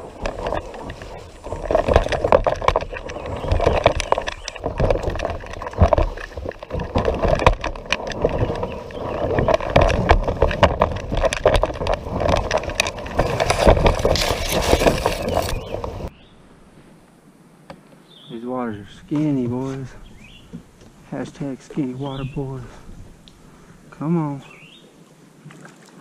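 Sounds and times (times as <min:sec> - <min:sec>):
water splashing and rushing: 0:00.0 - 0:16.1
kayak hull knocking and scraping: 0:00.0 - 0:16.2, 0:18.9 - 0:24.7.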